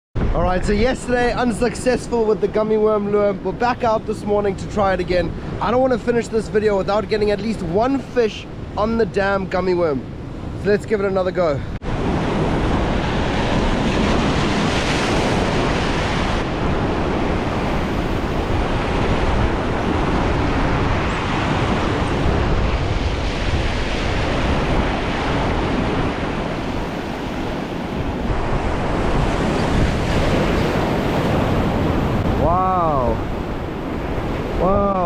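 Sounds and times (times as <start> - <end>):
ocean surf washing: 0.2 - 35.0
wind buffeting microphone: 11.6 - 35.0.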